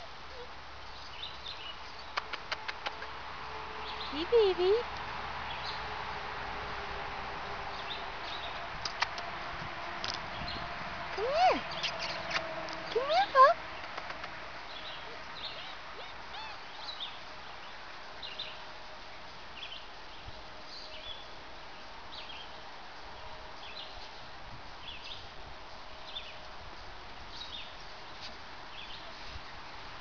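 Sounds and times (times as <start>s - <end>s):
bird chirping: 11.5s - 13.0s, 13.6s - 18.6s.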